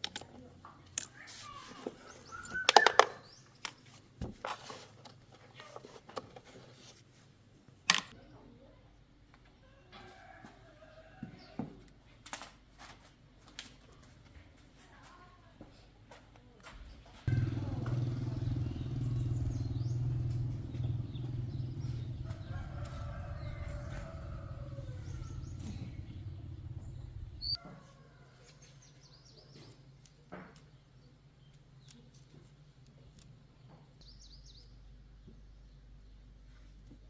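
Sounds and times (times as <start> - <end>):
faint birds chirping: 0.7 - 4.0, 16.7 - 37.0
motorcycle engine running: 17.3 - 27.6.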